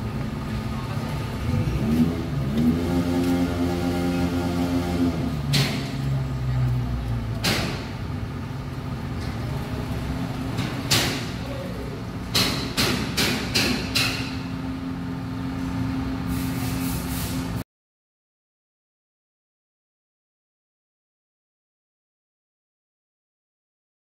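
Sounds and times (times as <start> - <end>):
sharp clicks and knocks: 12.3 - 14.4.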